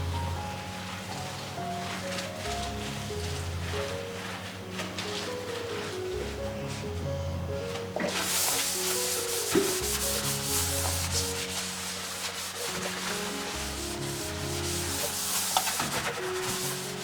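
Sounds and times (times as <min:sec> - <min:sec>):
soft background music: 0:00.0 - 0:17.0
scrubbing noise: 0:08.0 - 0:17.0.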